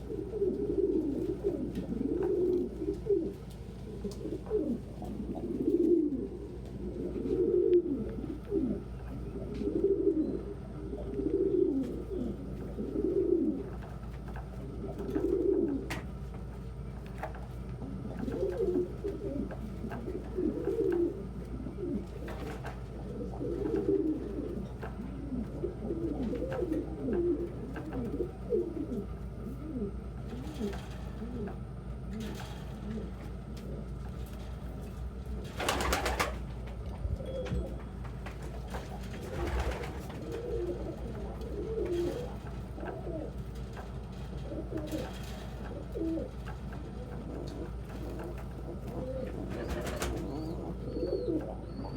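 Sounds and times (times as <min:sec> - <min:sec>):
pigeons cooing: 0:00.0 - 0:51.9
steady low hum: 0:00.0 - 0:51.9.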